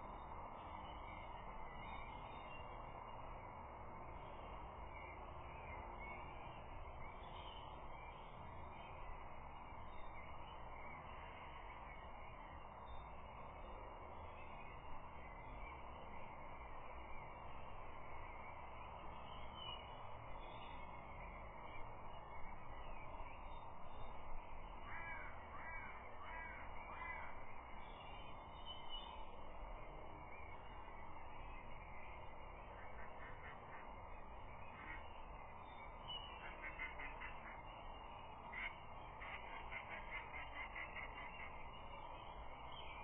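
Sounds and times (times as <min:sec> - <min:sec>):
songbirds chirping: 0:00.0 - 0:43.0
wind hiss: 0:00.0 - 0:43.0
bird calling: 0:24.8 - 0:29.3, 0:31.6 - 0:43.0.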